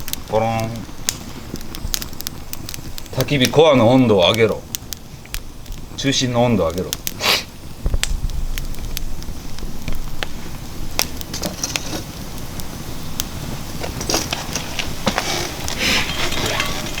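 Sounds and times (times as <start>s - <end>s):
fire pops and snaps: 0.0s - 17.0s
wood fire crackling: 0.0s - 17.0s.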